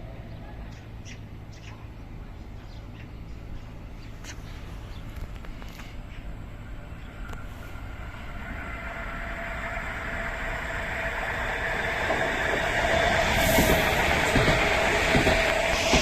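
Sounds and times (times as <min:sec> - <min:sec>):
train approaching: 0:00.0 - 0:16.0
train whine: 0:04.6 - 0:16.0.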